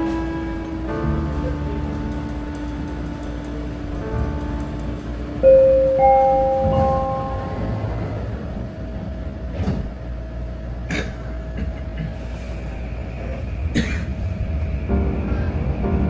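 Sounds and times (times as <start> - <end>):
wheels clacking over track joints: 0.0 - 10.1
train car rumble and whine: 0.0 - 16.0.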